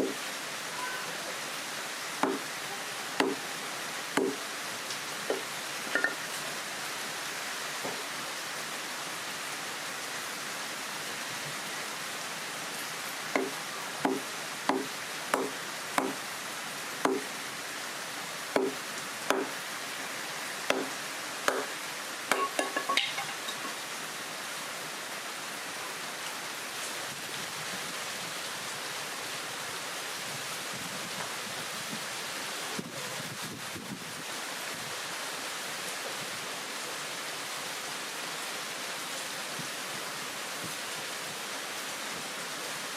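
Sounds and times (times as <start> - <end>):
heavy rain: 0.0 - 42.9
wooden chopping knocks: 2.2 - 2.4, 3.2 - 3.4, 4.2 - 4.4, 13.4 - 16.2, 17.0 - 17.3, 18.6 - 19.6, 20.7 - 20.9, 21.5 - 21.7.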